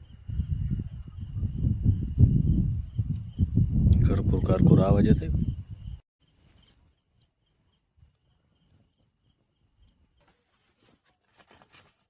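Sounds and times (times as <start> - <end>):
crickets and insects trilling: 0.0 - 10.2
soft rustles: 10.2 - 12.0.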